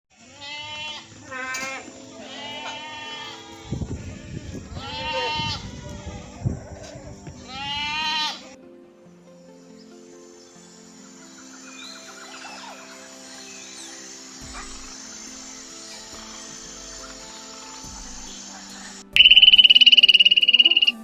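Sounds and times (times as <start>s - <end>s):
goats bleating: 0.2s - 3.6s, 4.7s - 8.6s
background music: 0.2s - 21.0s.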